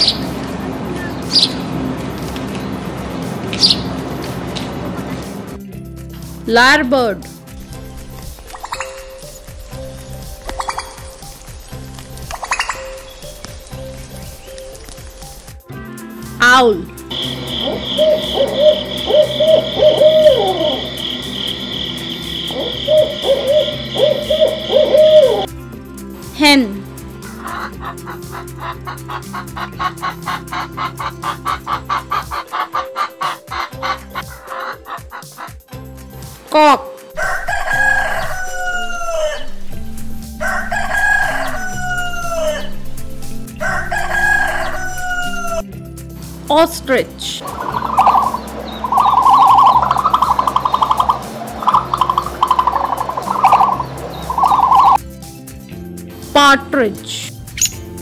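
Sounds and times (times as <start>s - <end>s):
quiet background music: 0.0s - 58.0s
owl hooting: 16.0s - 25.5s, 27.2s - 35.6s, 37.2s - 45.7s, 47.3s - 55.0s
rooster crowing: 17.1s - 25.5s, 37.2s - 45.7s, 47.4s - 55.0s
high pulsing sound: 37.2s - 45.7s, 47.4s - 55.0s.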